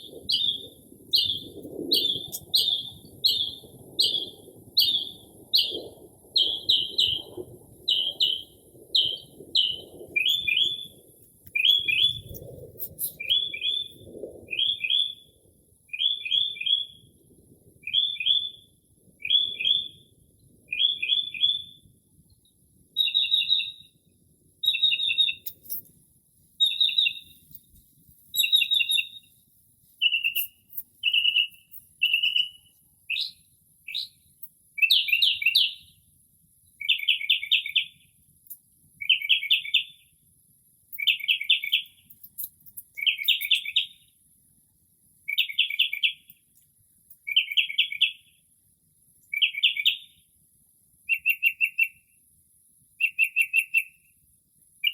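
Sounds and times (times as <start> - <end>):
mockingbird singing: 0.0 - 5.8, 11.5 - 13.9, 23.0 - 23.8, 24.6 - 25.8, 26.6 - 27.4, 28.3 - 29.3, 30.0 - 34.2, 41.0 - 44.0.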